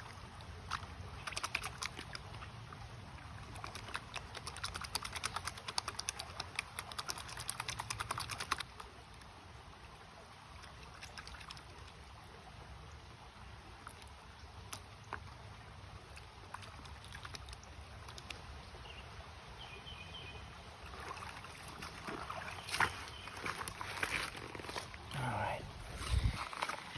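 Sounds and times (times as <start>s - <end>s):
creek water flowing: 0.0s - 26.9s
rapid patter of small ticks: 0.6s - 2.5s, 3.4s - 9.3s, 16.1s - 18.4s.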